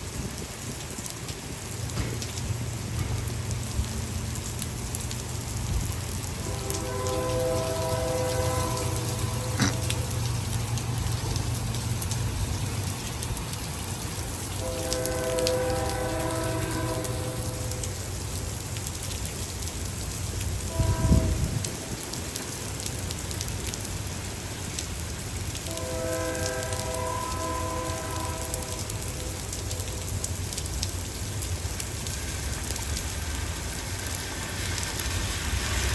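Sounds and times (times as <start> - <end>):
steady rain falling: 0.0 - 35.9
distant horn chord: 6.4 - 10.2.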